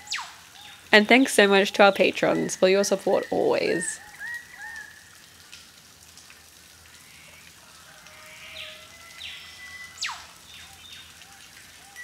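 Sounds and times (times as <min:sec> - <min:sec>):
birds calling and whistling: 0:08.5 - 0:11.2.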